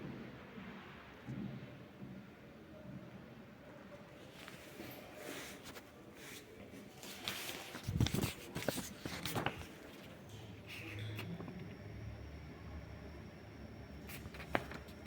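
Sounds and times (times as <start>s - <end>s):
rustling and handling noise: 4.1s - 11.6s, 14.0s - 15.0s.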